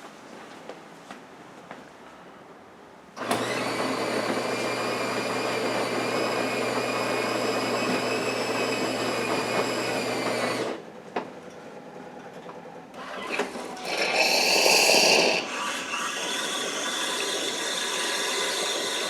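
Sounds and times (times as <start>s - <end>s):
coffee grinder motor whine: 3.2s - 10.8s, 13.0s - 19.0s.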